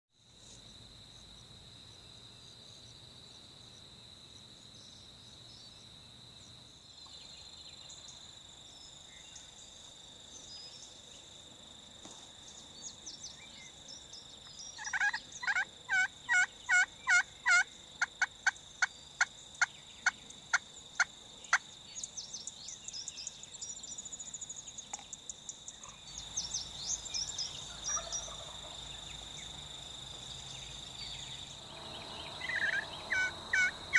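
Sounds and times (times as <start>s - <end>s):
wild turkey calls: 14.7s - 19.3s, 27.5s - 28.8s, 31.7s - 33.9s.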